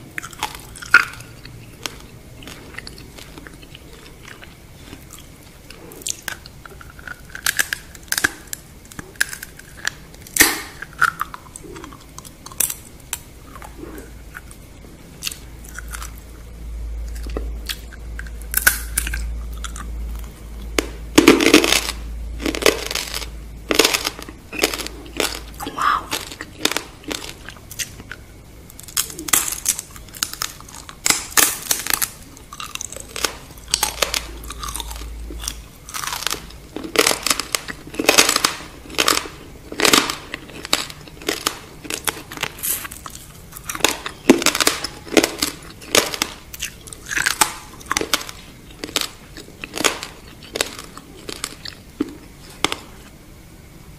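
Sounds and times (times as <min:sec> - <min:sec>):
crisp shells crunching: 0:17.1 - 0:53.0
wet mouth sounds: 0:24.5 - 0:27.8.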